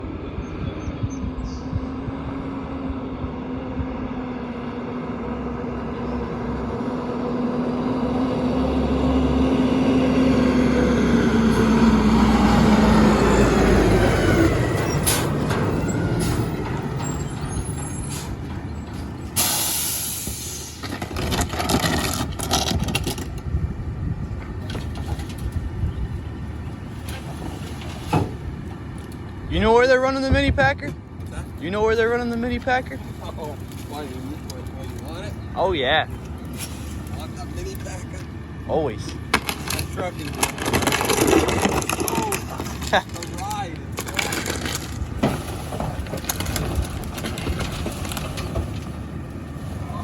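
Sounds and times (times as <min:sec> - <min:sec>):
garbage truck hydraulic packer: 0:13.0 - 0:23.2
sharp hiss of air: 0:19.4 - 0:20.8
knocks and clanks: 0:39.1 - 0:49.0.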